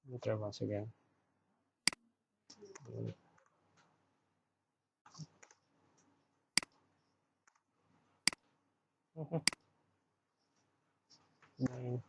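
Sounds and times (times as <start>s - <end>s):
computer mouse clicks: 5.1s - 6.8s, 7.4s - 7.7s
low voice murmur: 9.2s - 9.4s.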